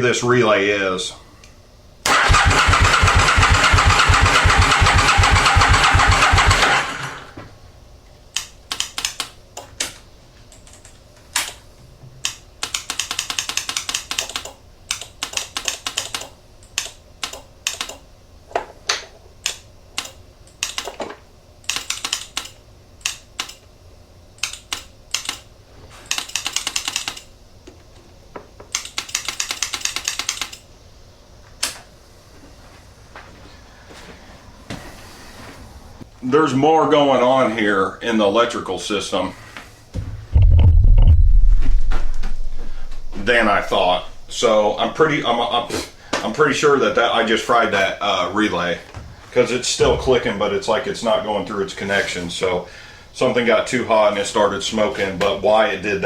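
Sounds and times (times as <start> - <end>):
starter relay clicking: 2.1 - 7.1
starter motor cranking engine: 2.1 - 7.3.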